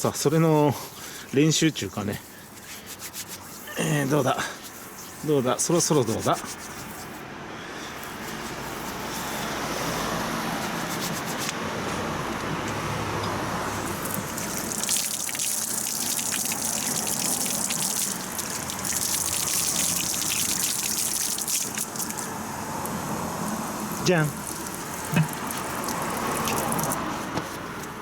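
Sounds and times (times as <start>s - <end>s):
tap water running and splashing: 13.6s - 27.9s.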